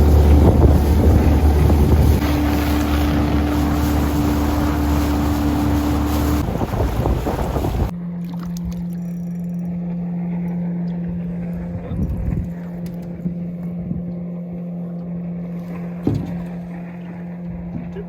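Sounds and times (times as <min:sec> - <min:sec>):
water splashing: 0:00.0 - 0:09.1
outboard motor running: 0:00.0 - 0:18.0.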